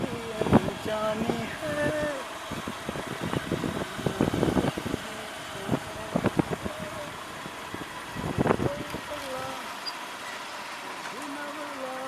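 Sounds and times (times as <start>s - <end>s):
motorcycle running: 0.0s - 12.0s
road and wind noise: 0.0s - 12.0s.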